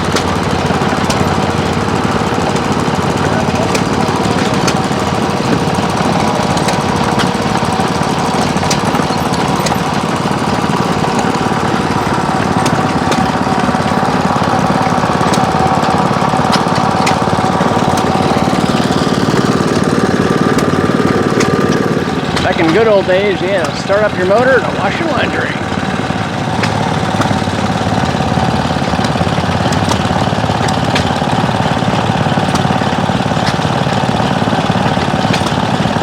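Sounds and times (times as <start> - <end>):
small gasoline engine running: 0.0 - 36.0.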